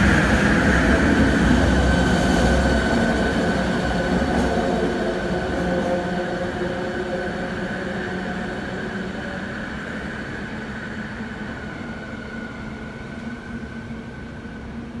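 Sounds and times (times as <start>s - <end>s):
train running noise: 0.0s - 15.0s.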